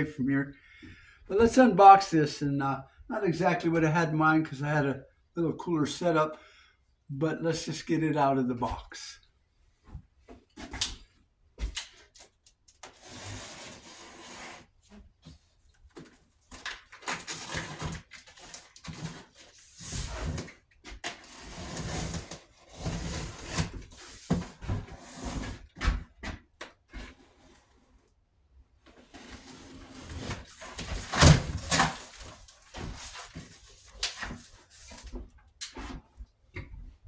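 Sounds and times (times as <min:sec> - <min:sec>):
cardboard scraping and rustling: 0:28.9 - 0:36.0.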